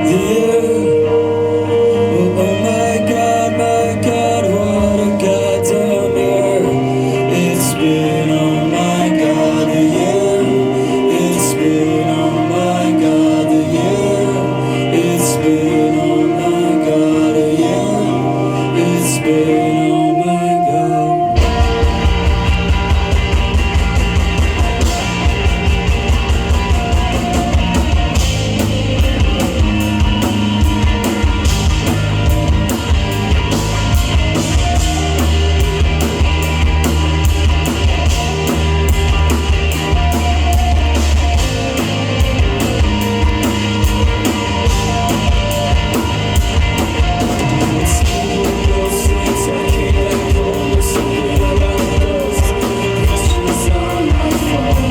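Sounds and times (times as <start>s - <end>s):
bass guitar: 0.0s - 54.9s
electric guitars: 0.0s - 54.9s
drum kit beat: 21.4s - 54.9s.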